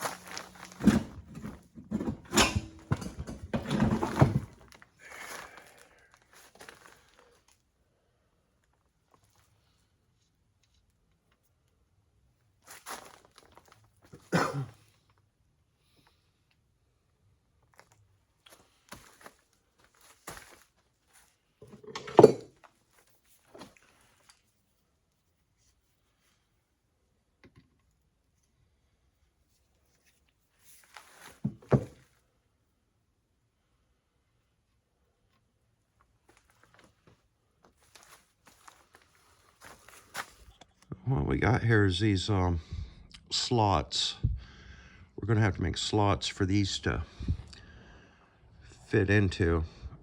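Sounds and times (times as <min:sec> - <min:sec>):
metal tools clattering: 0:00.0 - 0:04.6, 0:21.6 - 0:22.6
metal clinks and knocks: 0:00.7 - 0:04.5, 0:21.6 - 0:22.6.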